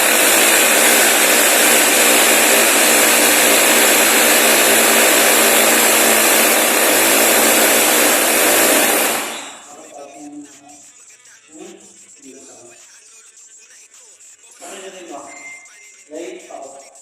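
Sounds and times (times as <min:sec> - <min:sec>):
power tool running: 0:00.0 - 0:09.8, 0:14.6 - 0:15.1.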